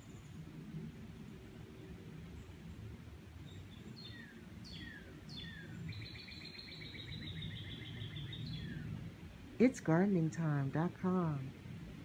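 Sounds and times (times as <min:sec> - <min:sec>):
songbird whistles and trill: 0:03.5 - 0:08.8.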